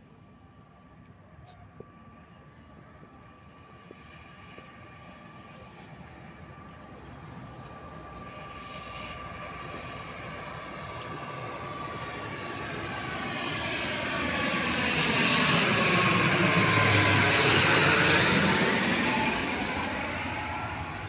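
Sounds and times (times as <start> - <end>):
turboprop airliner passing: 0.0 - 21.0.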